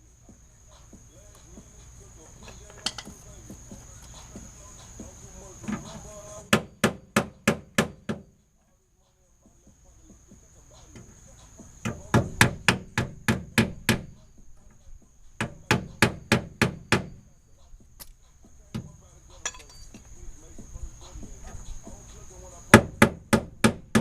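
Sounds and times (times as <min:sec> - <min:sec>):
hammer striking metal: 0:19.4 - 0:19.9.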